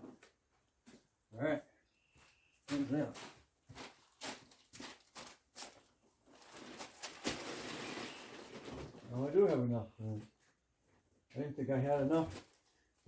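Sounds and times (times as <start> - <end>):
scraping or rustling: 3.2 - 9.4.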